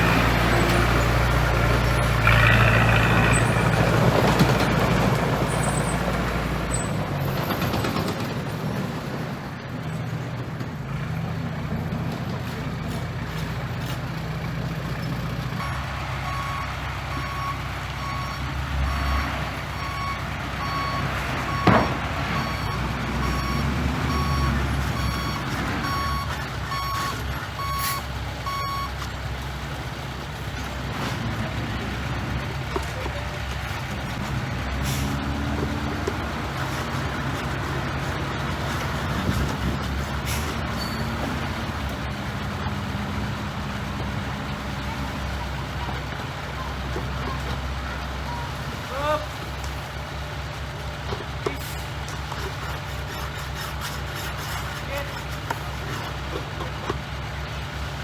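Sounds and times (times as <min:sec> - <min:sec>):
diesel engine running: 0:00.0 - 0:58.0
reversing alarm beeps: 0:15.6 - 0:28.9.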